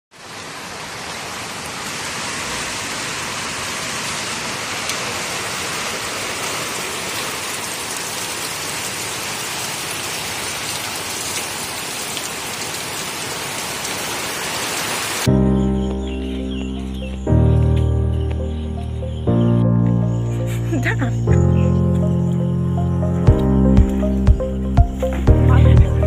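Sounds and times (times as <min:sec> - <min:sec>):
heavy rain on plants: 0:00.1 - 0:17.6, 0:23.1 - 0:26.0.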